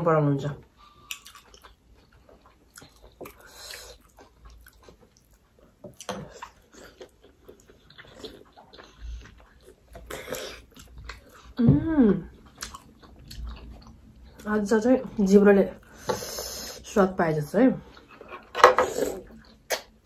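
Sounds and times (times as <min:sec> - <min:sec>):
people chewing and slurping: 0:00.8 - 0:14.5, 0:17.8 - 0:20.0.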